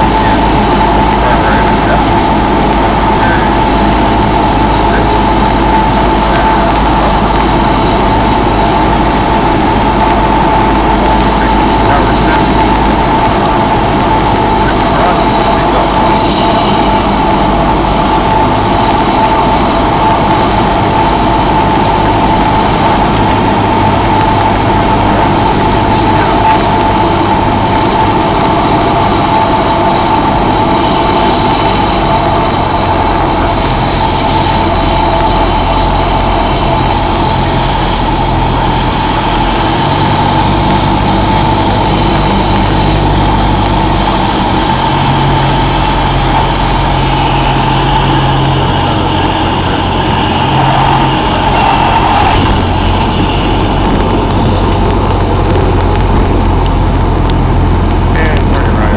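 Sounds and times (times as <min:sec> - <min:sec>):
light aircraft engine and propeller: 0:00.0 - 0:58.9.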